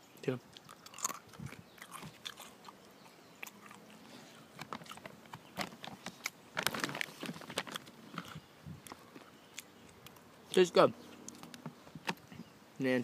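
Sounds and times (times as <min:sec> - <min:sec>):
person chewing crunchy food: 0:00.6 - 0:10.0.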